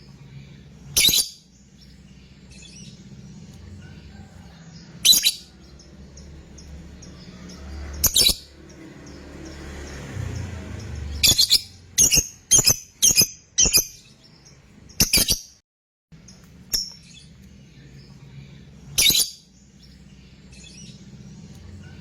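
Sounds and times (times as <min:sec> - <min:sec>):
lovebird chirping: 0:00.0 - 0:15.6, 0:16.2 - 0:22.0.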